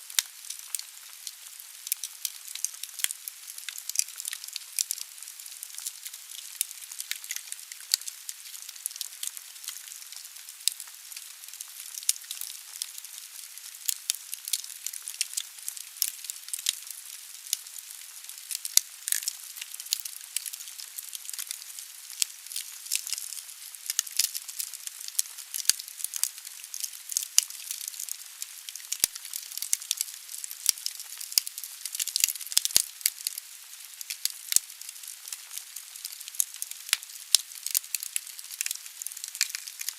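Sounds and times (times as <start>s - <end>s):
logs crackling and popping: 0.1s - 39.9s.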